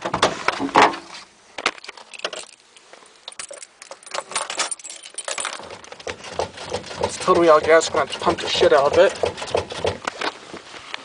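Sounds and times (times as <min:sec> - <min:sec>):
keys jangling: 0:01.8 - 0:06.0
clicks and rattles of car controls: 0:05.2 - 0:10.1.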